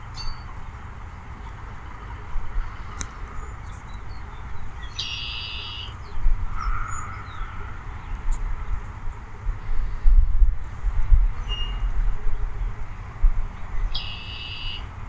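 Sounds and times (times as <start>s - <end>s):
small birds chirping: 0.0s - 10.1s, 11.3s - 14.9s.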